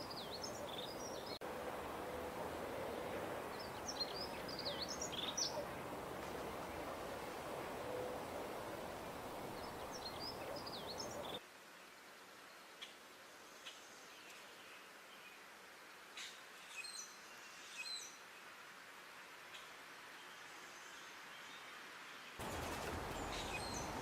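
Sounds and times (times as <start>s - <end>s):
small birds chirping: 0.0s - 1.4s, 2.7s - 11.4s, 22.4s - 24.0s
steady background hiss: 0.0s - 24.0s.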